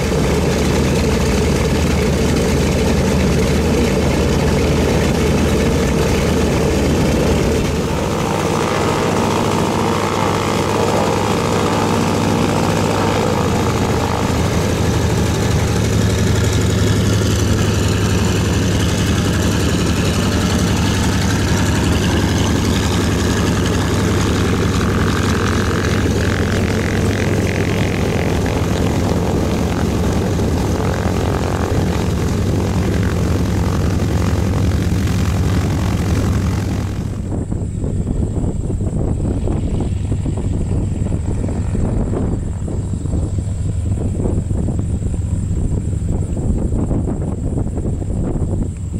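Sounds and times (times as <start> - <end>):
propeller plane engines droning: 0.0 - 48.9.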